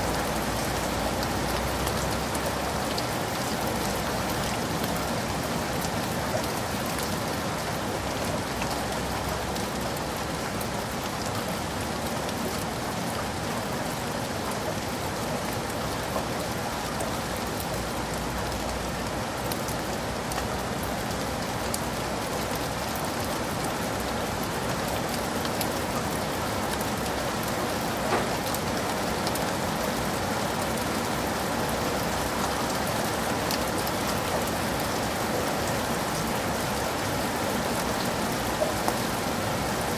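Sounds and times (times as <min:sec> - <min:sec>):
heavy rain falling: 0:00.0 - 0:39.9
raindrop ticks: 0:24.0 - 0:29.9.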